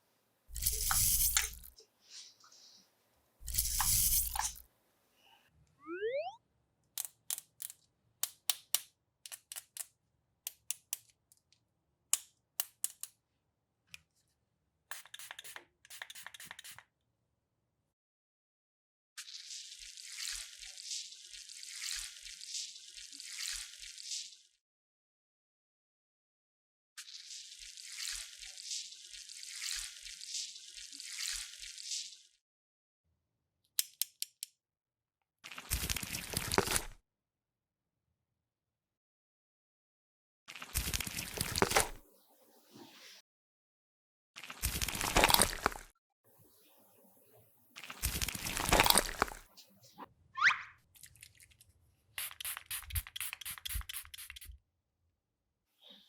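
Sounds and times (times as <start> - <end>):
plastic clicks and snaps: 7.0 - 13.2, 33.8 - 34.6.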